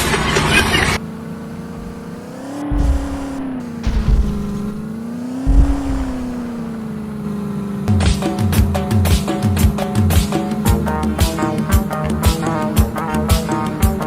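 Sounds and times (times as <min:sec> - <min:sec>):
tractor engine running: 0:00.0 - 0:14.0
heavy low thuds: 0:01.8 - 0:06.8.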